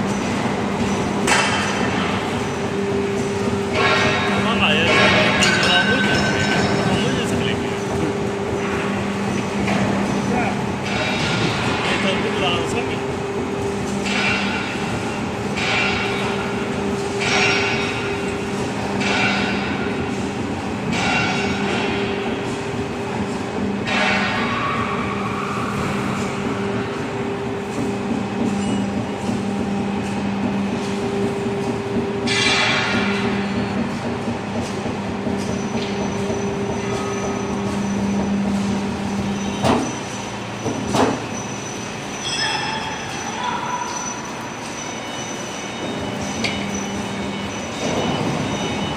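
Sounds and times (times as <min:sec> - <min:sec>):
hydraulic machine humming: 0:00.0 - 0:43.4
sharp metallic knocks: 0:01.2 - 0:02.3, 0:03.2 - 0:13.0, 0:13.9 - 0:41.3.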